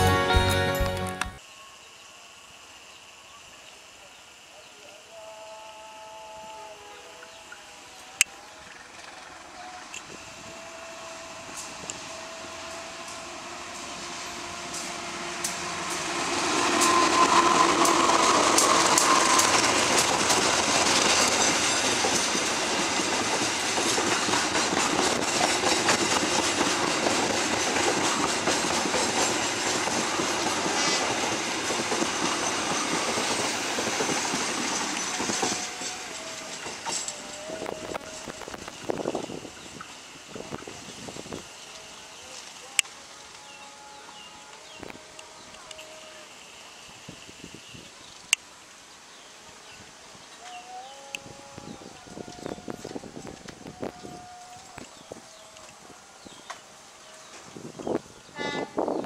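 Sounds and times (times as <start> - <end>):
diesel locomotive passing: 6.3 - 59.0
train wheels clattering over rail joints: 13.8 - 38.8.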